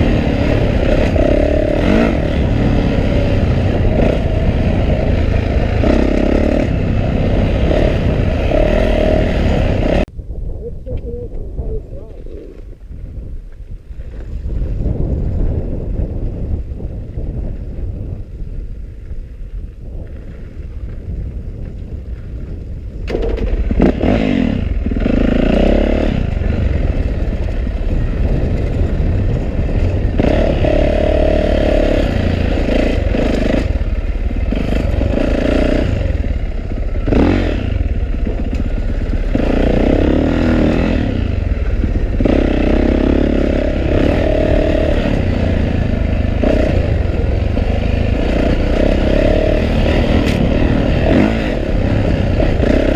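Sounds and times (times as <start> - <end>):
motorcycle engine revving: 0.0 - 10.1, 21.6 - 52.9.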